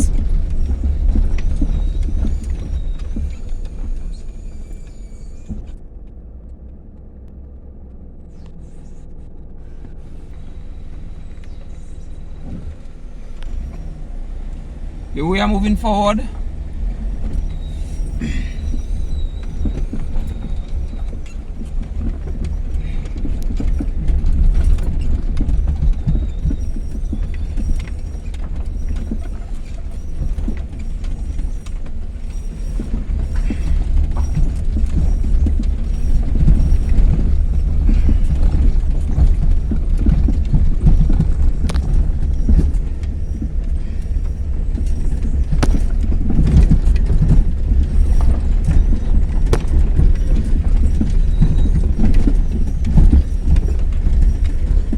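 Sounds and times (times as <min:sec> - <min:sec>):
car rumble from inside cabin: 0:00.0 - 0:54.9
knocks and rattles: 0:16.7 - 0:54.9.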